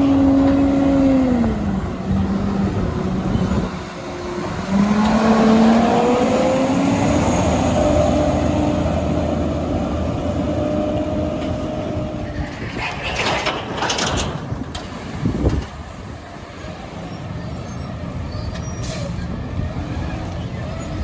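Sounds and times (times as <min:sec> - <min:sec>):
diesel truck engine running: 0:00.0 - 0:12.2.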